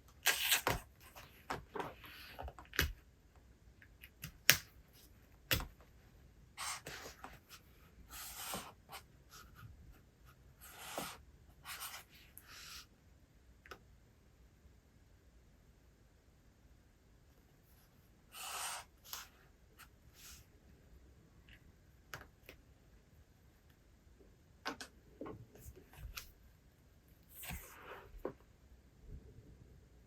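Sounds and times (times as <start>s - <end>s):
book pages rustling and turning: 27.3s - 28.4s.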